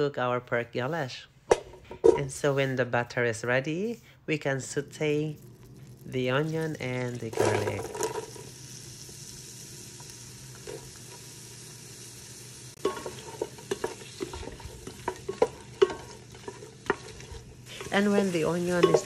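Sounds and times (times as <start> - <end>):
onion and garlic sizzling in butter: 2.4 - 19.0
wooden spoon scraping a pot: 12.8 - 19.0.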